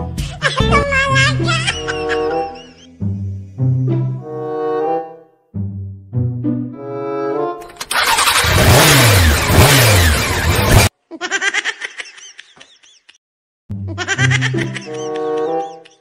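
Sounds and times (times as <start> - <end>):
background music: 0.0 - 7.6, 13.7 - 16.0
motorcycle engine starting and revving: 7.6 - 10.9.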